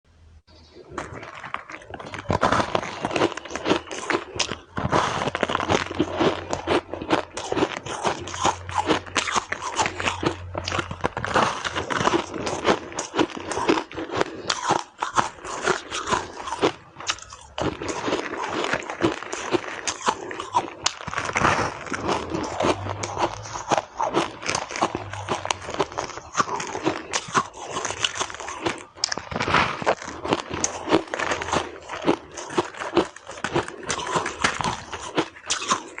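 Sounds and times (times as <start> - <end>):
crunching shaved ice: 0.7 - 36.0.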